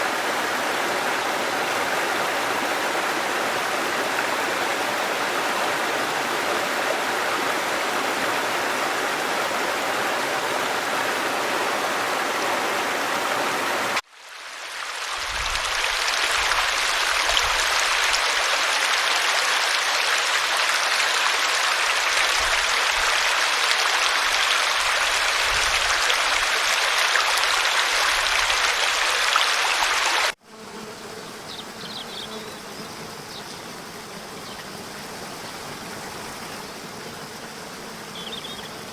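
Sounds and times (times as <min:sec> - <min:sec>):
stream water rushing: 0:00.0 - 0:30.4.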